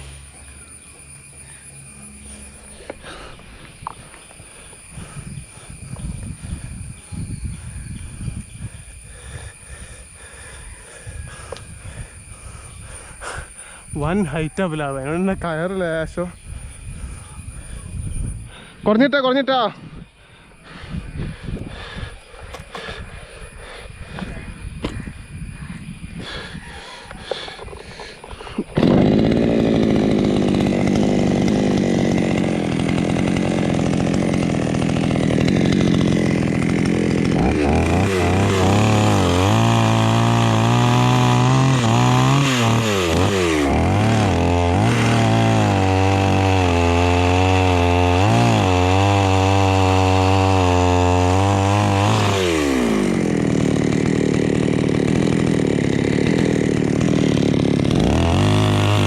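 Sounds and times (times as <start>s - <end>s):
chainsaw cutting wood: 0.0s - 7.0s, 27.1s - 59.0s.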